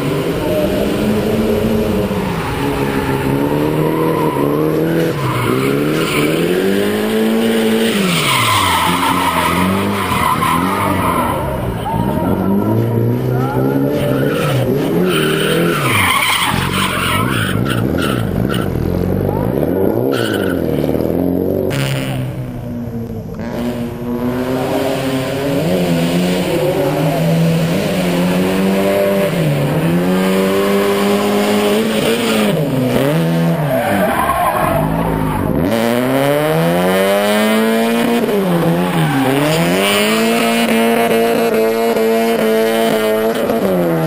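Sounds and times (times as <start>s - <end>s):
car engine revving high: 0.0s - 44.0s.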